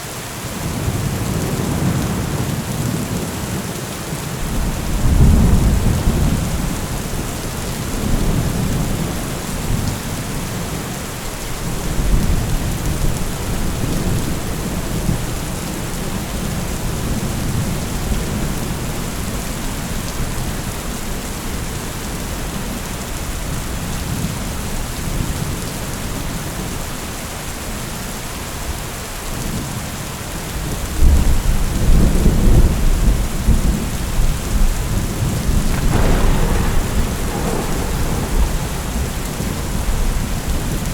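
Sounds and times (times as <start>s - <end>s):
steady rain: 0.0s - 40.9s
rolling thunder: 4.2s - 26.7s, 30.6s - 40.9s.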